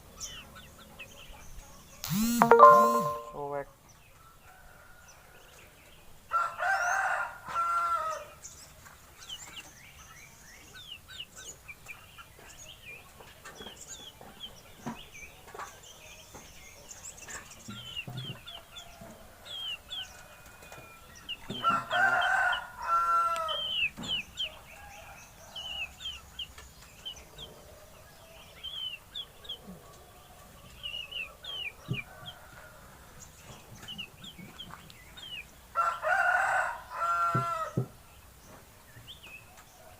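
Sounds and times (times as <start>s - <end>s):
small birds chirping: 0.0s - 4.4s, 8.0s - 36.1s
rooster crowing: 6.3s - 8.3s, 21.6s - 23.6s, 35.8s - 37.8s.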